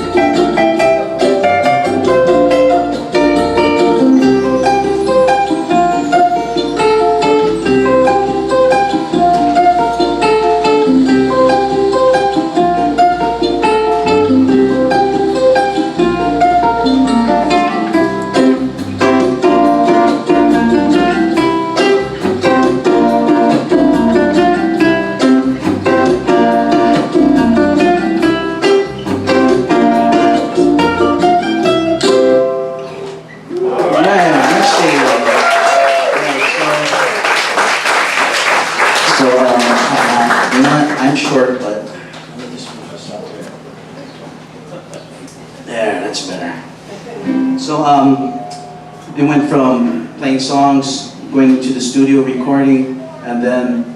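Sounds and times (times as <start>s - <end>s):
fingerstyle ukulele melody: 0.0s - 33.2s, 47.2s - 47.6s.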